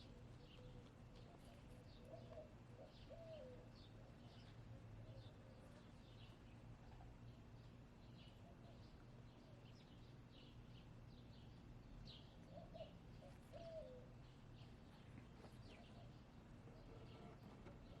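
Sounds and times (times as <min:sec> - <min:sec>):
faint wild birds chirping: 0:00.0 - 0:18.0.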